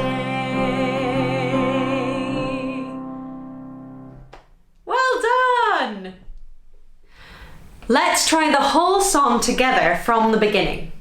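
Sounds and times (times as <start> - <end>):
woman singing with vibrato: 0.0 - 3.4
musical accompaniment: 0.0 - 4.5.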